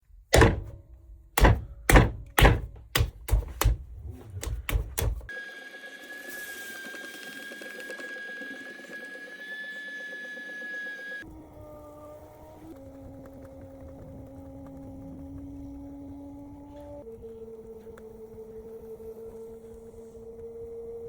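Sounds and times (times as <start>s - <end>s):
heavy thuds: 0.2s - 5.3s
high whine: 3.8s - 21.0s
faint hum: 6.3s - 21.0s.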